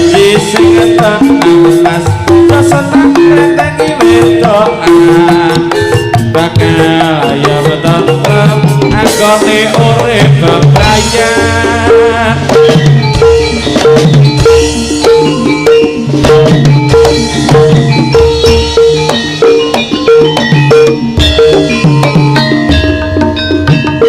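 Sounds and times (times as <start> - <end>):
person singing: 0.0 - 13.4
drums and percussion: 0.0 - 24.0
repeated melodic note: 0.0 - 24.0.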